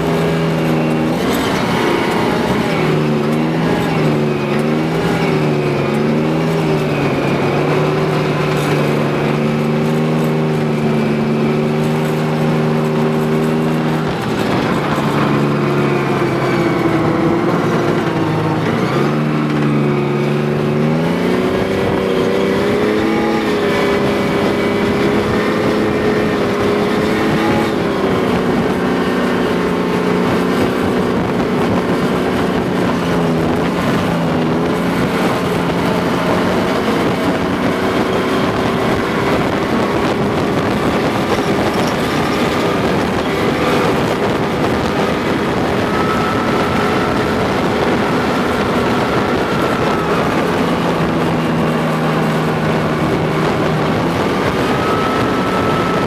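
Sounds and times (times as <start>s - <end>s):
tracked vehicle engine running hard: 0.0s - 56.0s.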